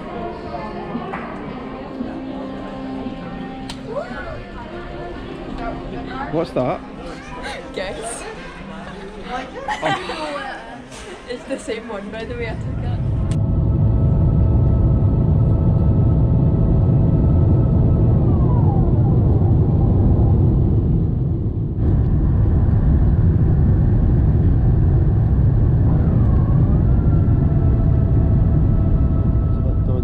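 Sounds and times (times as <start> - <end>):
airliner engine rumble: 12.2 - 30.0.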